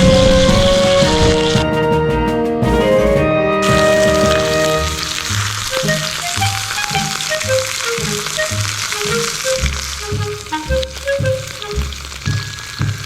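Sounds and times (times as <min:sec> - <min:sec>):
music with a steady beat: 0:00.0 - 0:13.0
food frying in a pan: 0:03.6 - 0:13.0.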